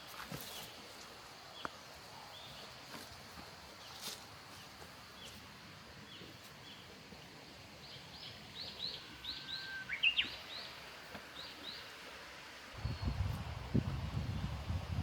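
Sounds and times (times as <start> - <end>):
soft outdoor hiss: 0.0 - 15.0
small bird chirping: 7.8 - 10.7.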